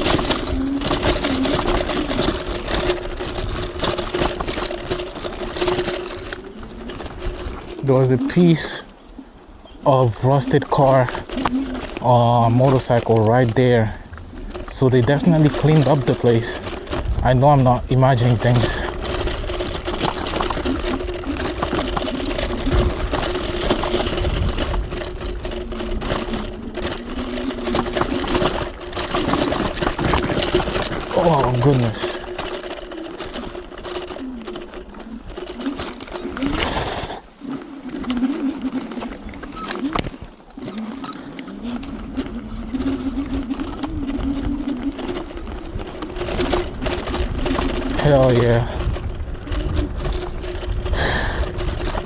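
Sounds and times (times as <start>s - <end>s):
rattles and knocks: 0.0s - 8.4s, 14.4s - 37.2s, 38.0s - 52.0s
electric scooter motor whine: 0.0s - 17.2s, 17.8s - 52.0s.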